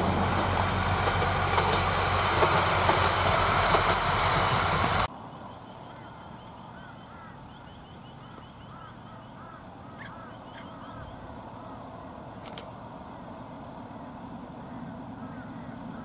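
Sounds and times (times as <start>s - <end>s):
birds chirping: 5.2s - 12.0s, 14.5s - 16.0s.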